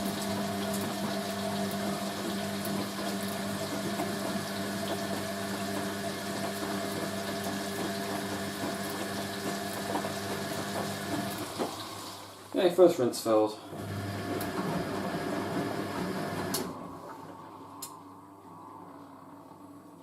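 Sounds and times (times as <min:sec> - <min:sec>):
washing machine pump humming: 0:00.0 - 0:12.7, 0:13.6 - 0:20.0
water running: 0:00.0 - 0:13.0.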